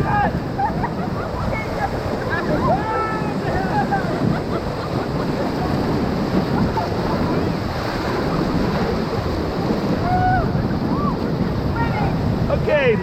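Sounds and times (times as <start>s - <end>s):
faint shouts: 0.0s - 0.4s, 2.6s - 3.7s
whitewater rushing: 0.0s - 13.0s.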